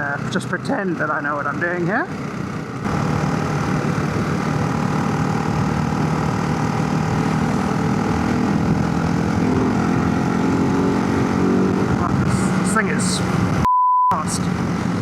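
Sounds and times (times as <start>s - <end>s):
motorcycle engine running: 0.0s - 13.7s
wind rushing over microphone: 2.9s - 13.7s.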